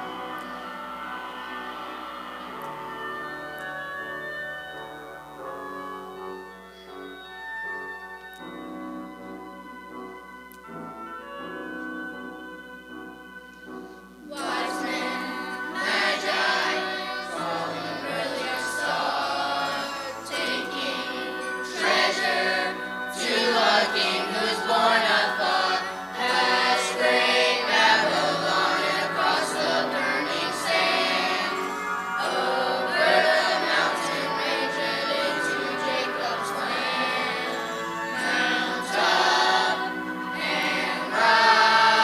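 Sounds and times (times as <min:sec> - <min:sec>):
choir singing: 0:00.0 - 0:03.3, 0:14.2 - 0:42.0
instrumental accompaniment: 0:00.0 - 0:42.0.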